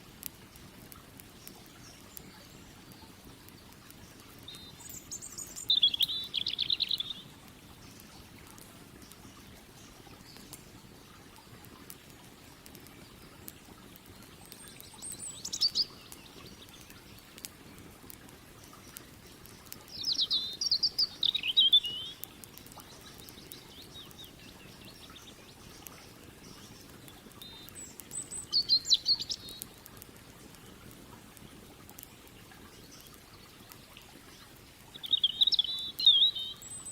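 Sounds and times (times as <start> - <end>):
campfire crackling: 0.0 - 36.9
songbird trilling: 4.5 - 7.3, 15.0 - 16.4, 19.9 - 22.3, 27.4 - 29.6, 34.9 - 36.9.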